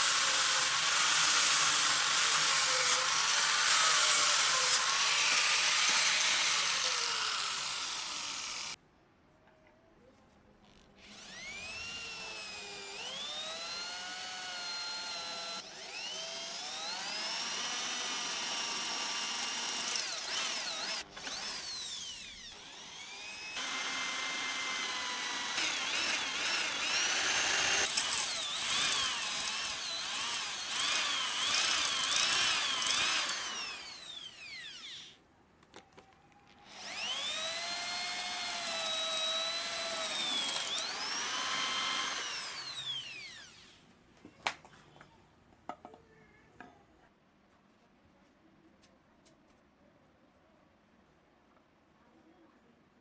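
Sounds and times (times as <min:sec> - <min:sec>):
power tool motor whining on metal: 0:00.0 - 0:08.8, 0:11.1 - 0:35.2, 0:36.7 - 0:43.8.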